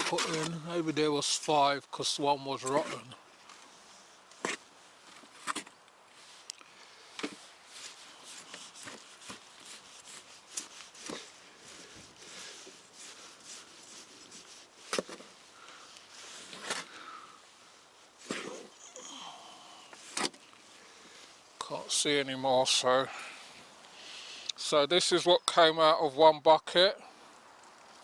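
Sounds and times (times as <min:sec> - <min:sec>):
hands rummaging through soil: 0:00.0 - 0:01.6, 0:07.1 - 0:19.0.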